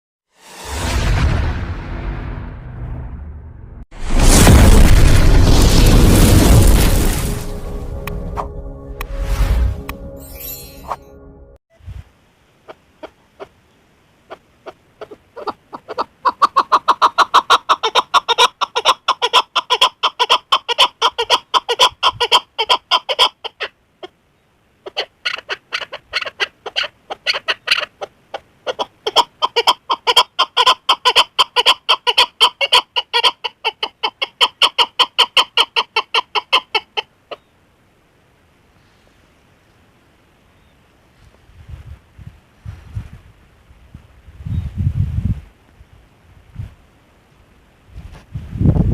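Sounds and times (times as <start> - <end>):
partridge calling: 24.9 - 33.3.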